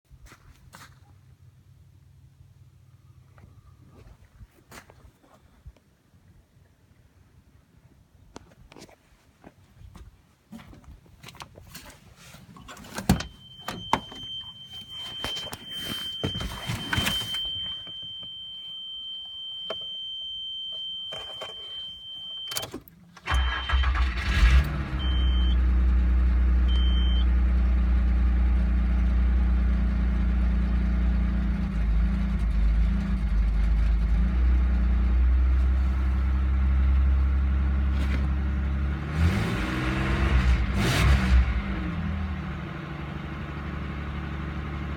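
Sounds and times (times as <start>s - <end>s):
car engine starting and idling: 12.6s - 19.1s, 19.7s - 44.9s
short beeps: 13.2s - 24.0s, 25.0s - 25.6s, 26.7s - 27.3s
engine revving: 23.3s - 27.0s, 38.7s - 43.1s.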